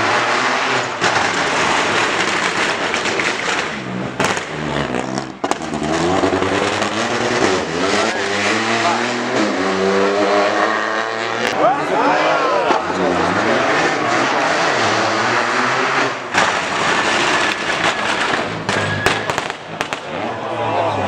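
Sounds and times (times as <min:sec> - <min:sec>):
rally car engine at high revs: 0:00.0 - 0:18.9.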